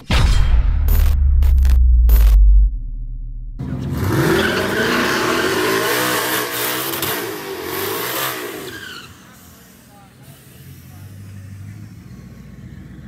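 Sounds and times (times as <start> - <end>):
car engine revving: 1.6 - 9.9.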